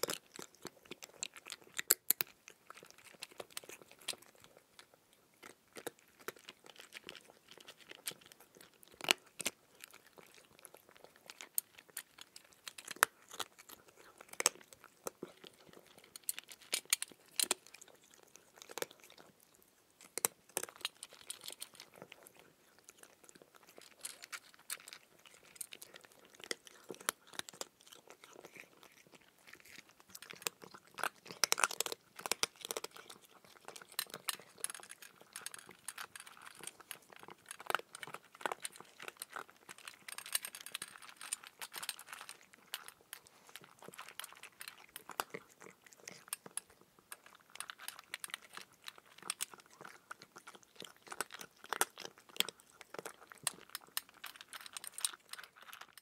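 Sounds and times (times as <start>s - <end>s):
cucumber crunching while chewed: 0.0s - 56.0s.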